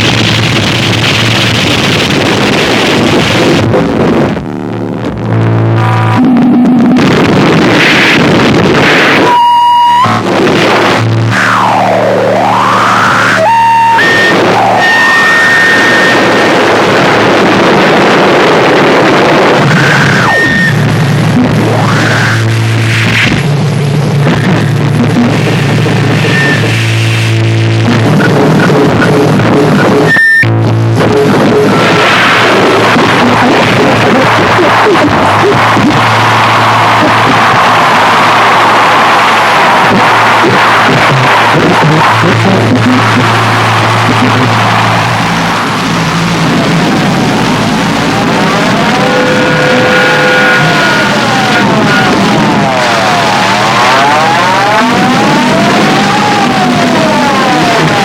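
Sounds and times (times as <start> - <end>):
distorted hiss noise music: 0.0 - 58.0
loud dense static: 0.0 - 58.0
low hum: 0.0 - 58.0
wobbling squeals and crackles: 0.0 - 58.0
sweeping electronic tones: 9.2 - 10.3, 11.0 - 16.4
steady high tone: 9.2 - 16.5, 41.2 - 57.8.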